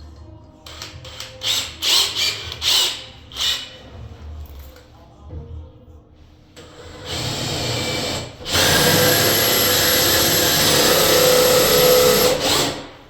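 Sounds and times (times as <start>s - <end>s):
power drill boring into wood: 7.1s - 12.9s.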